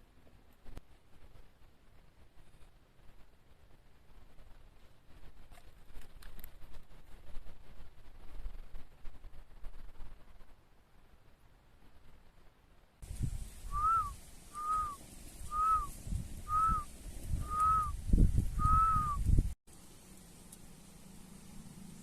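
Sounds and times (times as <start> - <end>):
bird whistling calls: 13.7 - 19.3.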